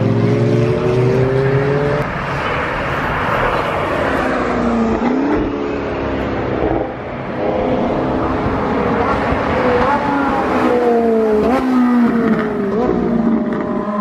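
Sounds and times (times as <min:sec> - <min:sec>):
sports car engine accelerating: 0:00.0 - 0:02.4
car passing with tyre noise: 0:00.0 - 0:14.0.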